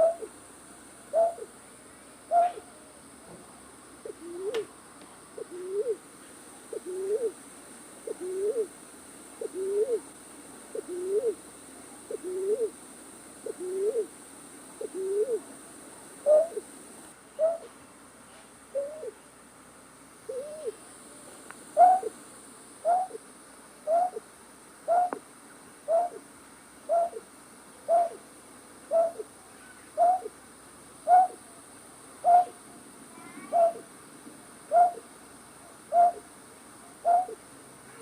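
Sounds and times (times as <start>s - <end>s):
night bird hooting: 0.0s - 0.4s, 1.1s - 1.5s, 2.3s - 2.8s, 4.0s - 4.7s, 5.4s - 6.0s, 6.7s - 7.4s, 8.0s - 8.8s, 9.4s - 10.1s, 10.7s - 11.4s, 12.1s - 12.8s, 13.4s - 14.1s, 14.8s - 15.5s, 16.2s - 16.7s, 17.4s - 17.7s, 18.7s - 19.2s, 20.3s - 20.8s, 21.8s - 22.2s, 22.8s - 23.2s, 23.8s - 25.2s, 25.9s - 26.2s, 26.9s - 28.2s, 28.9s - 29.3s, 30.0s - 30.3s, 31.0s - 31.4s, 32.2s - 32.6s, 33.4s - 33.9s, 34.7s - 35.1s, 35.9s - 36.3s, 37.0s - 37.4s.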